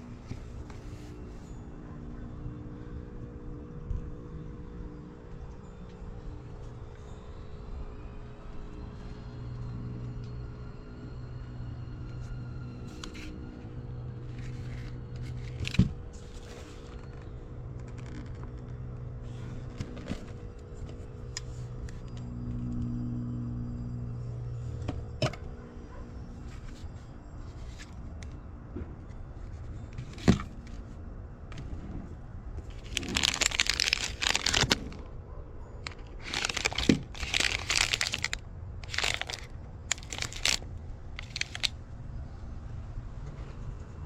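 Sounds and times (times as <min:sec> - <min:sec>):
trash crinkling and rustling: 0:32.6 - 0:35.1, 0:35.8 - 0:41.7.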